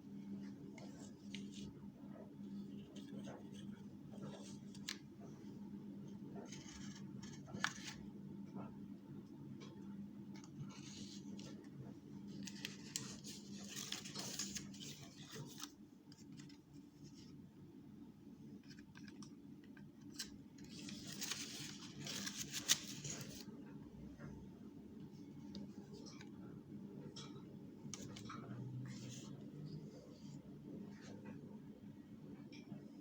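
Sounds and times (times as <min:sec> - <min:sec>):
rustling and scraping handling noise: 0:10.4 - 0:17.5, 0:18.6 - 0:23.6.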